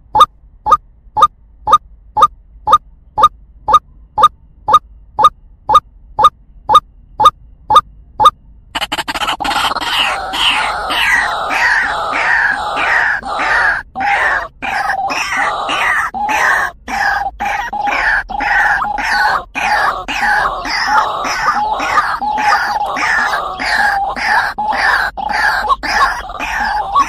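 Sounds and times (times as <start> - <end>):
bird croaking calls: 8.8 - 27.0.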